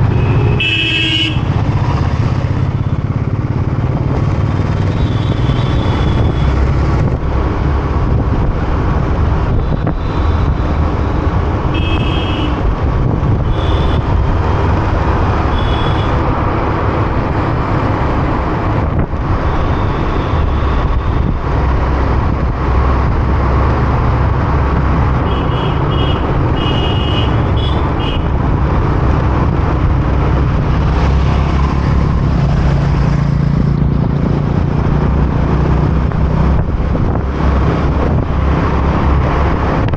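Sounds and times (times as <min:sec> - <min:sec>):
motorcycle engine rumble: 0:00.0 - 0:39.9
vehicle horn toots: 0:00.1 - 0:01.5, 0:11.7 - 0:12.6, 0:13.5 - 0:14.1, 0:15.5 - 0:16.2, 0:25.2 - 0:28.3.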